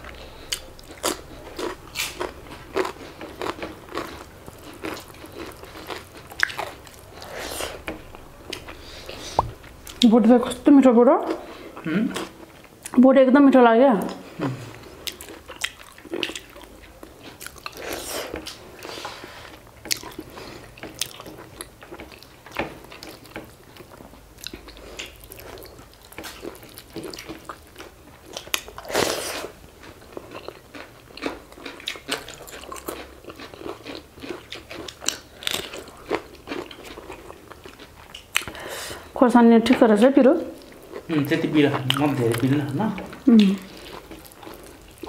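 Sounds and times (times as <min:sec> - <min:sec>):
people chewing and crunching food: 0:00.0 - 0:13.0, 0:14.0 - 0:45.0
wet mouth clicks and smacks: 0:09.3 - 0:09.6.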